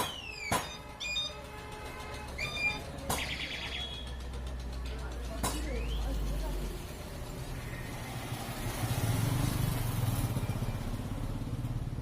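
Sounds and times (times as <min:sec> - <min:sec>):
diesel engine thudding: 0:00.0 - 0:08.5.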